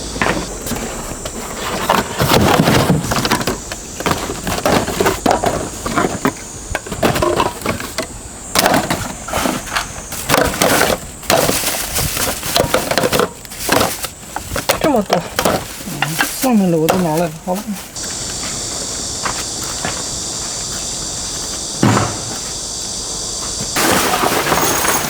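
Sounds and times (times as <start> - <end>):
household objects clattering: 0.2 - 18.0, 23.8 - 25.0.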